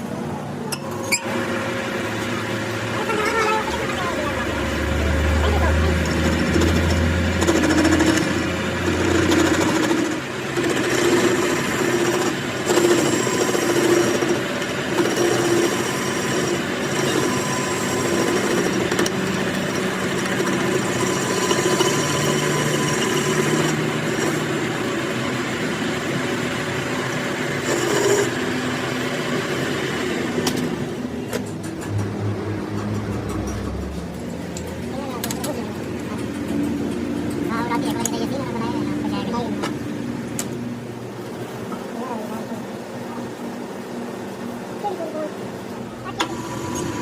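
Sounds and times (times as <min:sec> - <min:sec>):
power tool grinding metal: 0:05.2 - 0:29.7.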